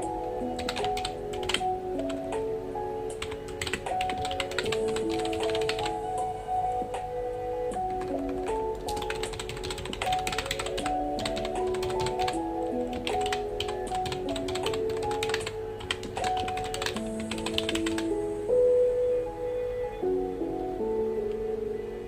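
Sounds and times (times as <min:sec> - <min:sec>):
soft background music: 0:00.0 - 0:22.0
keyboard typing: 0:00.6 - 0:02.2, 0:03.1 - 0:06.0, 0:07.8 - 0:18.2.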